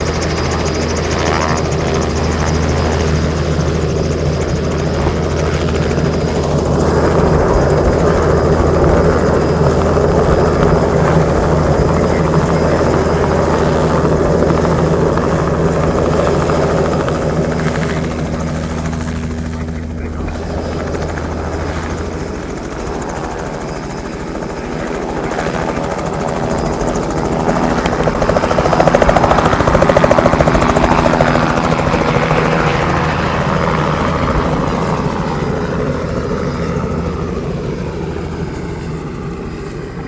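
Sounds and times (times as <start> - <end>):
helicopter rotor drone: 0.0 - 40.0.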